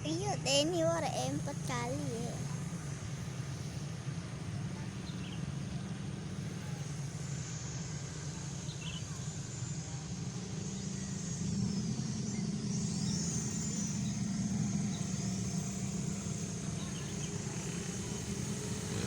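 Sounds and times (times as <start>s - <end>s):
small electric propeller motors droning: 0.0s - 19.0s.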